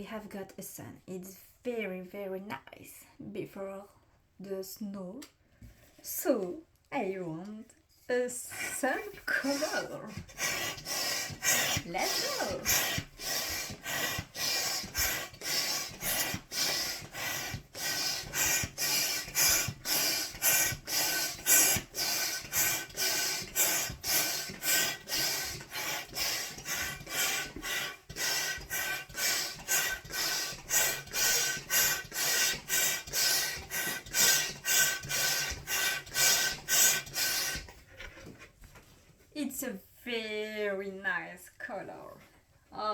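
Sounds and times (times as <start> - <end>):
hand pump hissing air: 8.7 - 37.8.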